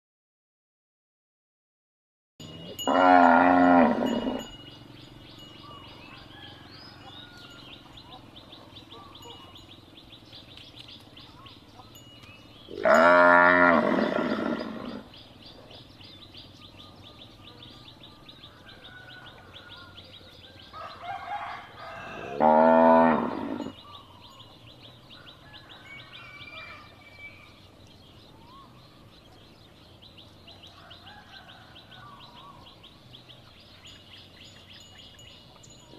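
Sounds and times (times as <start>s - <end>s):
cow mooing: 2.4s - 4.5s, 12.7s - 15.1s, 21.9s - 23.8s.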